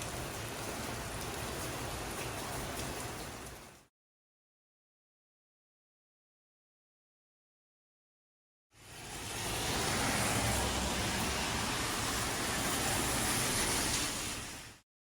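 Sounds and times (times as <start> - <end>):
heavy rain hissing: 8.8 - 14.8.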